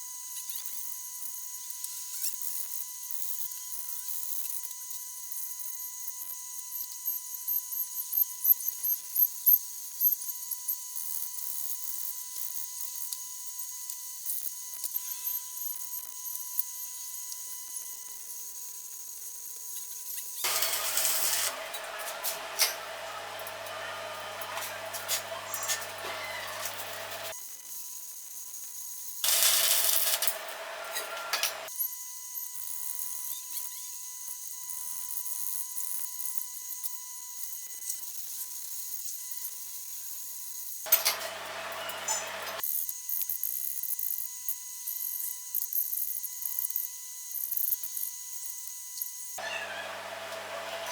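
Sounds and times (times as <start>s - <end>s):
welding arc hissing and crackling: 20.4s - 27.4s, 28.0s - 31.7s, 40.9s - 42.8s
steady thin whine: 29.2s - 31.7s.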